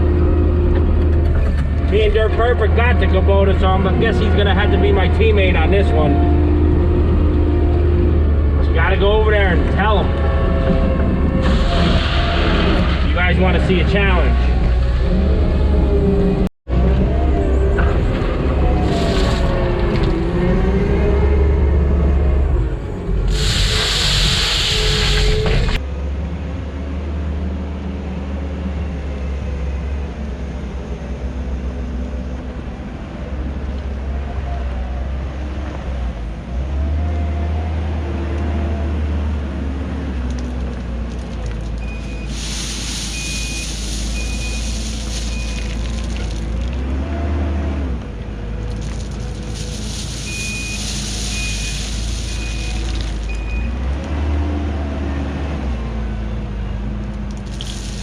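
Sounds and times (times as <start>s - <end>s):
diesel engine under load: 0.0s - 58.0s
loud hiss: 23.2s - 25.5s, 42.2s - 45.5s, 49.4s - 53.3s
reversing alarm beeps: 41.8s - 42.4s, 43.0s - 45.8s, 50.2s - 53.8s.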